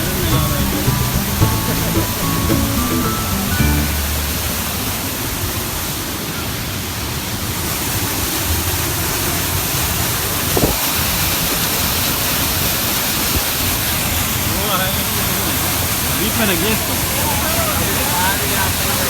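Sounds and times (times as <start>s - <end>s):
waterfall rushing: 0.0s - 5.9s.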